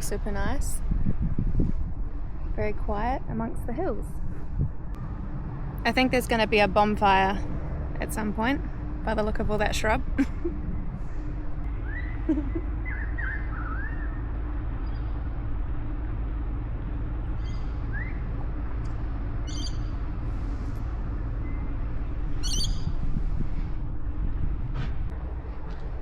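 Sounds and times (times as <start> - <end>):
steady low rumble: 0.0 - 26.0
birds whistling: 11.8 - 14.2, 19.4 - 19.9, 22.4 - 22.9.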